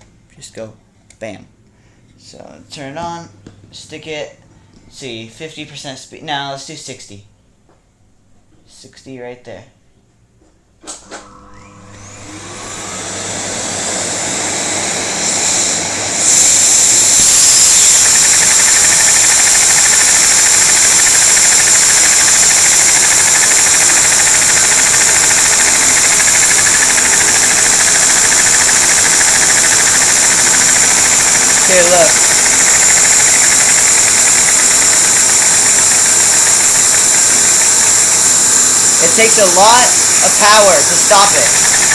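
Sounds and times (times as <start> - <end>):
vacuum cleaner motor whine: 10.8 - 41.9
small engine clattering rapidly: 16.2 - 41.9.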